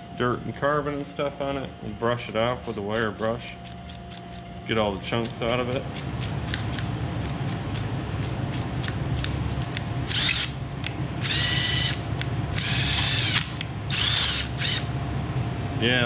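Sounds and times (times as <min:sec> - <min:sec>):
electric impact driver whining: 0:10.1 - 0:10.6, 0:11.2 - 0:14.9.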